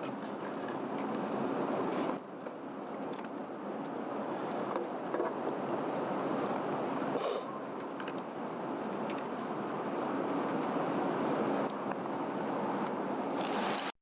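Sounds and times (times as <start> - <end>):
fire rushing: 0.0 - 14.0
fire crackling and popping: 12.8 - 14.0.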